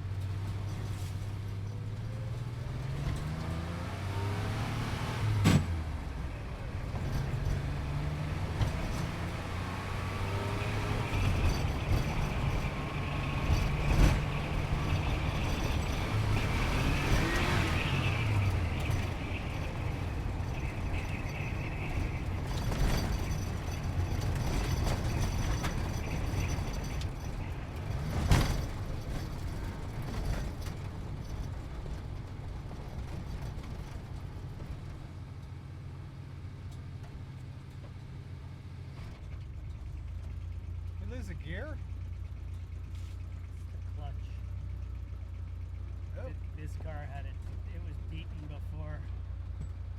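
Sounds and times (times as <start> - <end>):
sports car engine revving: 2.1 - 21.8.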